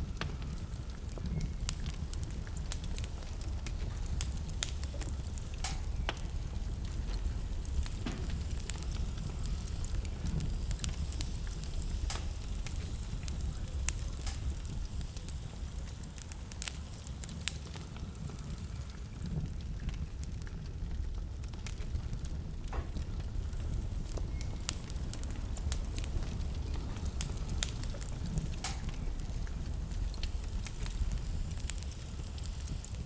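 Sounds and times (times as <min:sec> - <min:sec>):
wood fire crackling and popping: 0:00.0 - 0:33.0.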